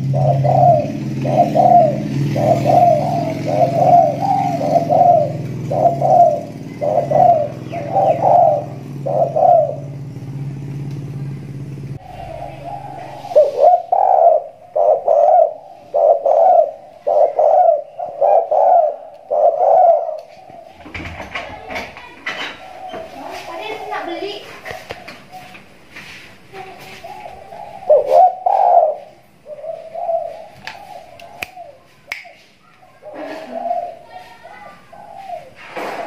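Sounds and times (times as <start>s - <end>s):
steady low hum: 0.0s - 20.9s
dove cooing: 0.0s - 25.9s, 26.5s - 32.0s, 32.7s - 36.0s.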